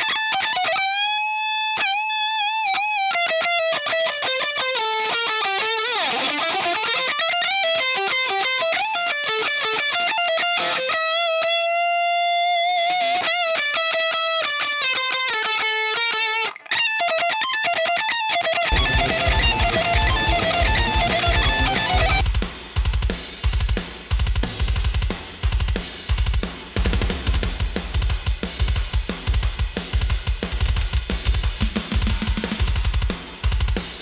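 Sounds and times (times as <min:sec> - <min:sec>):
electric guitar lead melody: 0:00.0 - 0:22.3
full band backing: 0:18.7 - 0:29.9
drums: 0:18.7 - 0:34.0.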